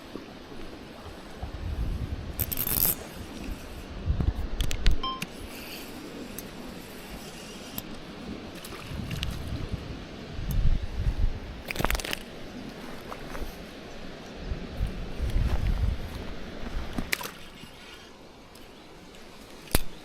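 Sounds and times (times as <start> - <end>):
wind buffeting microphone: 0.9 - 5.0, 8.3 - 13.6, 14.4 - 17.2.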